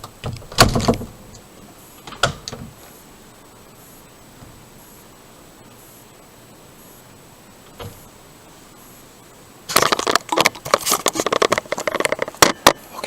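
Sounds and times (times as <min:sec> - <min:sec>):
door rattling and knocking: 0:00.2 - 0:01.3.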